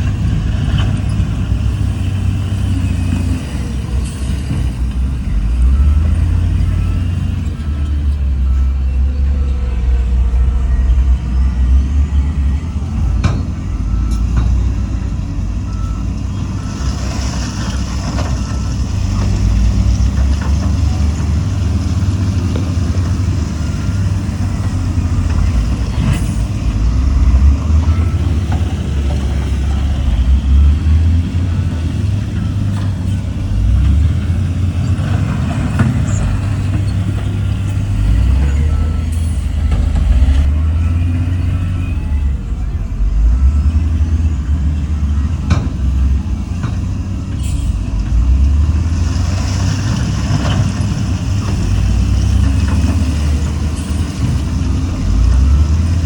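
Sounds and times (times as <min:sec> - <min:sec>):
diesel machinery rumbling: 0:00.0 - 0:56.0
reversing alarm beeps: 0:02.6 - 0:17.6, 0:20.9 - 0:34.2, 0:35.8 - 0:47.8, 0:52.4 - 0:56.0.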